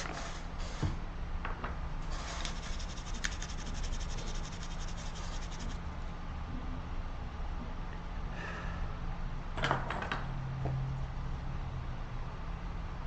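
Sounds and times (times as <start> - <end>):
steady low hum: 0.0 - 9.6
hand tool scraping resin: 2.1 - 5.8.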